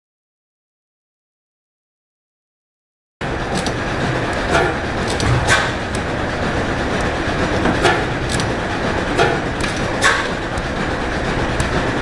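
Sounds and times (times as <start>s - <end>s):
sharp engine clacks: 3.2s - 12.0s.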